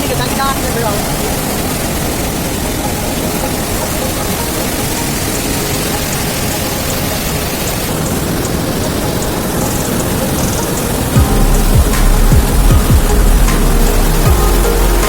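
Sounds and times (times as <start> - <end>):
waterfall roaring: 0.0 - 15.0
deep bass thump and rumble: 11.2 - 15.0.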